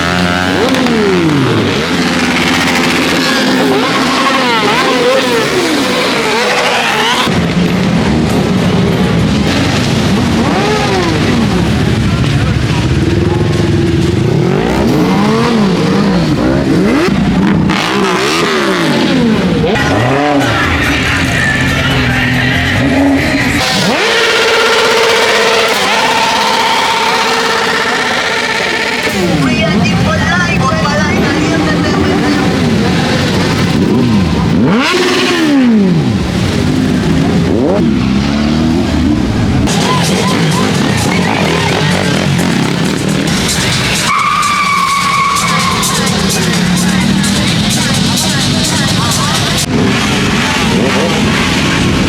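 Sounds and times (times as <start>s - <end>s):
motorcycle engines revving: 0.0s - 52.0s
motorcycles riding past: 45.8s - 52.0s.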